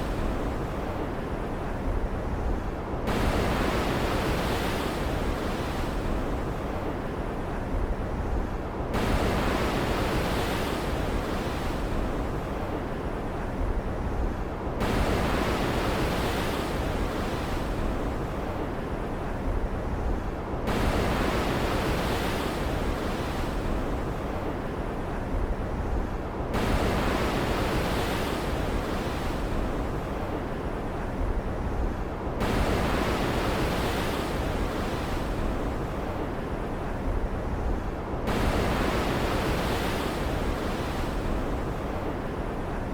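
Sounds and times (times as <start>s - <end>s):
stormy ocean waves breaking: 0.0s - 42.9s.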